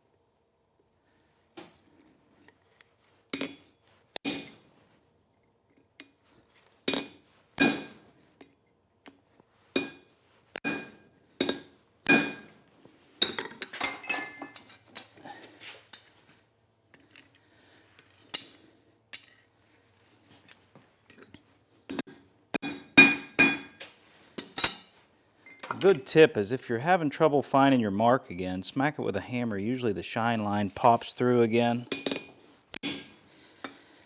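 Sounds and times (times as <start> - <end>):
high-ringing metal clinks: 13.8 - 15.1.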